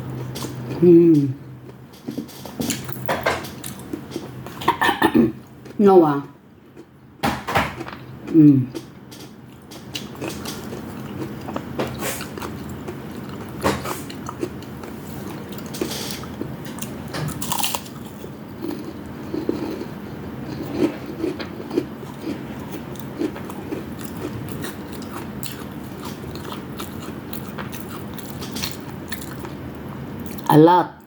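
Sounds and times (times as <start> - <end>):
steady chewing: 7.8 - 30.5
crunching fried food: 9.6 - 30.5.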